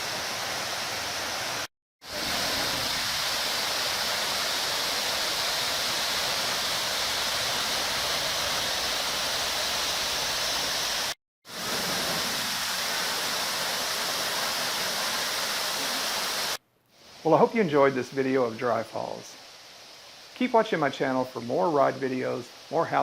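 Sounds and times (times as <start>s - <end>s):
waterfall rushing: 0.0s - 16.6s.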